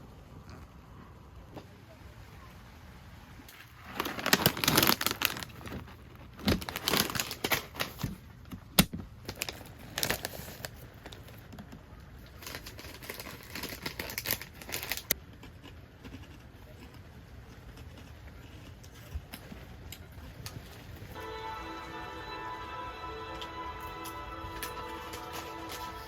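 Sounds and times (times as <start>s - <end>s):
crinkling handling noise: 3.5s - 15.2s, 24.0s - 26.0s.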